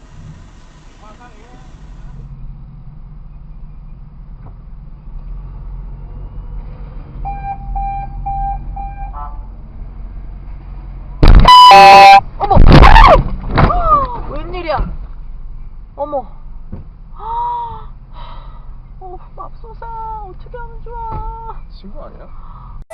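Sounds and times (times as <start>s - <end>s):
low vehicle hum: 0.0s - 22.9s
short electronic warning beeps: 11.2s - 12.2s
loud blaring tone: 11.2s - 12.3s.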